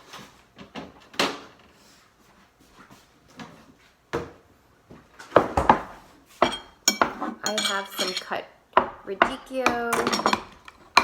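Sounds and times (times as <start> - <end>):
clatter of kitchen items: 5.2 - 11.0
kitchen items knocking on counter: 5.3 - 8.2, 8.8 - 11.0.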